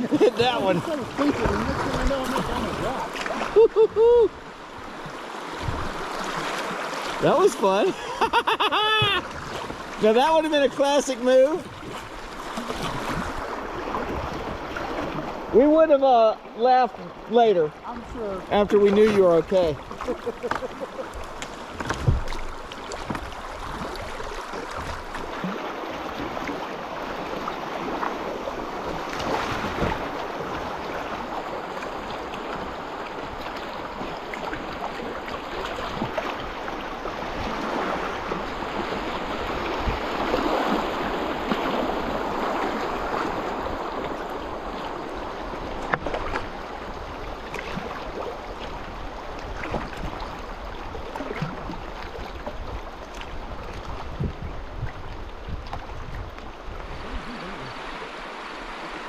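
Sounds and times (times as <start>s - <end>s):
river water rushing over rocks: 56.5s - 59.0s.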